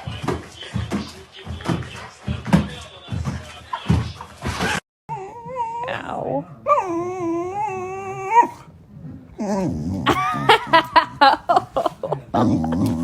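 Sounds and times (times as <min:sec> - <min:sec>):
dog whine-howl: 0:05.1 - 0:08.6.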